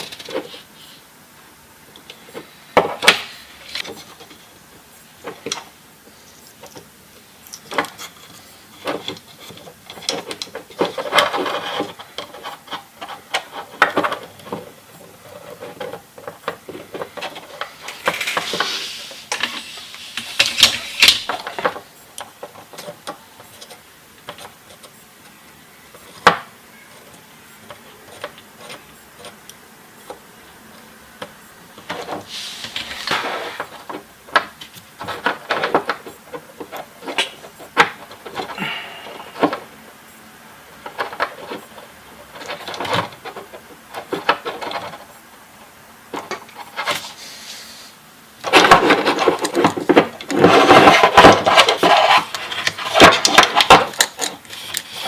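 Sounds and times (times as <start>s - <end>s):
small hard parts clicking: 6.5s - 30.2s, 48.4s - 55.0s
scraping: 15.1s - 21.8s, 48.4s - 55.0s.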